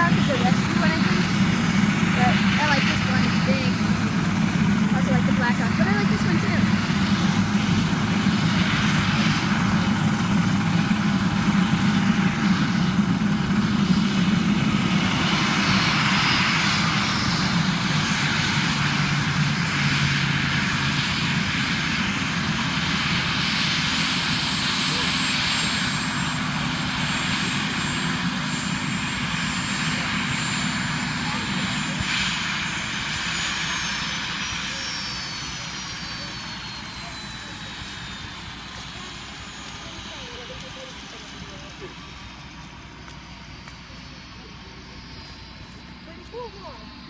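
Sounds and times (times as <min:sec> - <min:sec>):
helicopter engines and rotor: 0:00.0 - 0:47.0.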